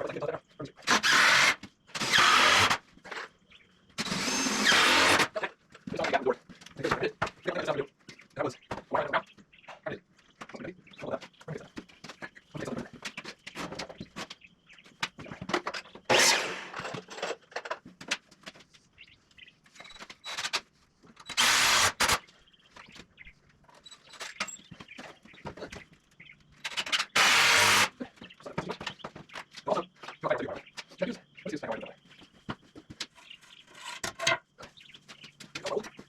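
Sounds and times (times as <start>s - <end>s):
power drill running: 0.9s - 2.8s, 4.0s - 5.3s, 16.1s - 17.0s, 21.3s - 22.2s, 27.2s - 27.9s.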